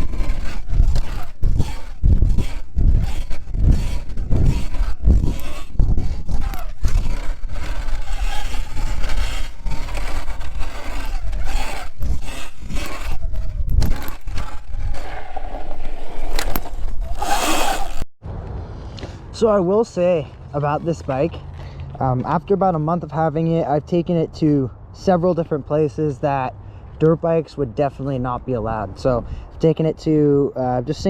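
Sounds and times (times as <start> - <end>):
electric motor whine: 0.0 - 15.0, 17.0 - 18.0
tyres scraping over dirt: 0.0 - 18.0, 19.0 - 23.3.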